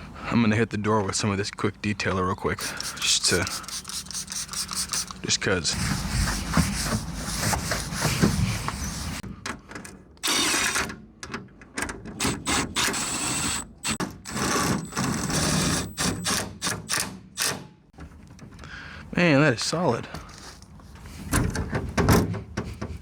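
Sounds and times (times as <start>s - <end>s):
power drill running: 10.2s - 10.8s, 12.2s - 16.2s.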